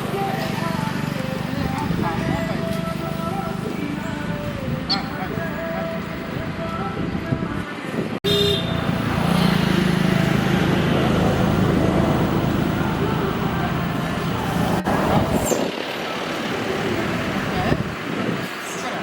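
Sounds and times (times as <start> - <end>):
road traffic noise: 0.0 - 19.0
vehicle engine running: 8.8 - 15.3.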